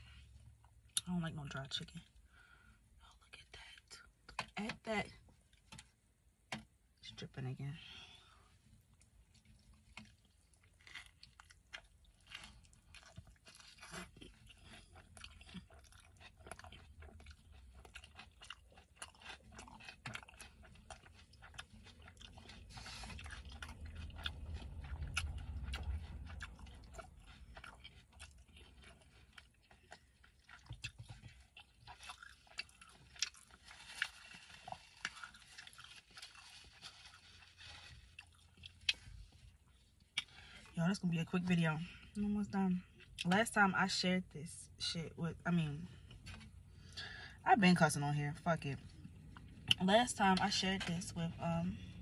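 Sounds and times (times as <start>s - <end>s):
wet chewing and mouth clicks: 8.8s - 40.8s, 48.8s - 51.1s.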